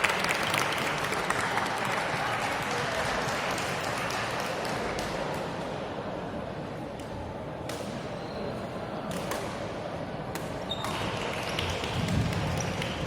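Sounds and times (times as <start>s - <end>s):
murmur of sports hall: 0.0s - 13.0s
rackets striking shuttlecock: 9.1s - 9.7s.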